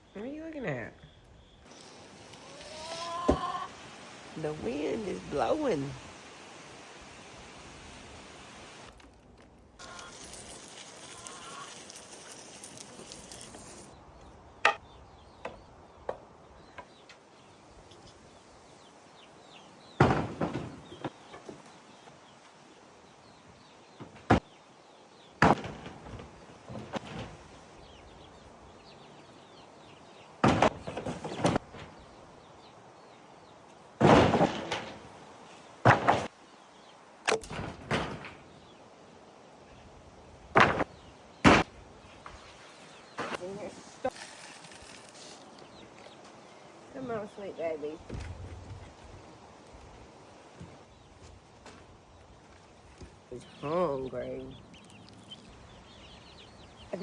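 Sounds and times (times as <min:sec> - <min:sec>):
faint steady background noise: 0:00.0 - 0:57.0
knocks and clunks: 0:20.0 - 0:21.6, 0:30.4 - 0:32.1, 0:34.0 - 0:35.2, 0:35.8 - 0:36.3, 0:37.3 - 0:38.6.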